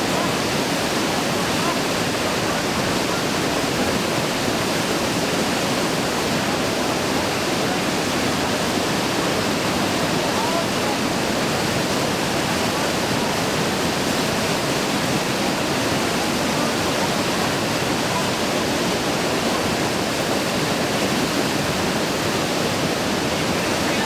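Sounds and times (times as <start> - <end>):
whitewater rapids rushing: 0.0 - 24.0.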